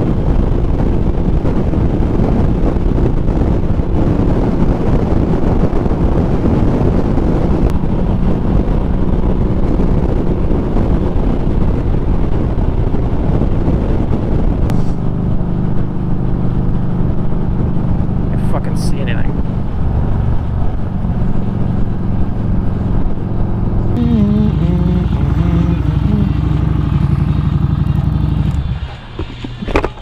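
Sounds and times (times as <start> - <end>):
motorcycle engine running: 0.0 - 30.0
wind rush on microphone: 0.0 - 30.0.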